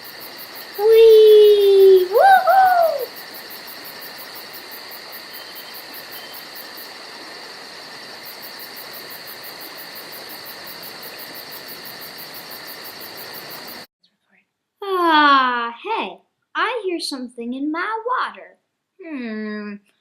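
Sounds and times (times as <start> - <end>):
crickets trilling: 0.0 - 13.9.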